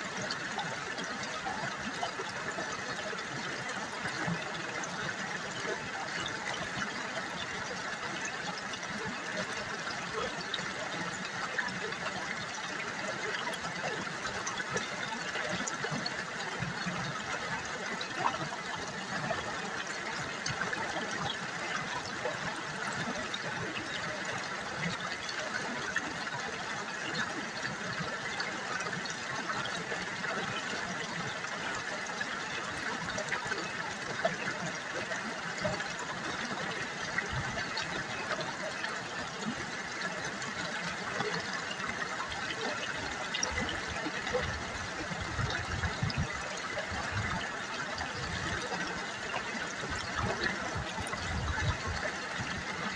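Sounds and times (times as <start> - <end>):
river water babbling: 0.0 - 52.9
small water splashes: 0.0 - 52.9.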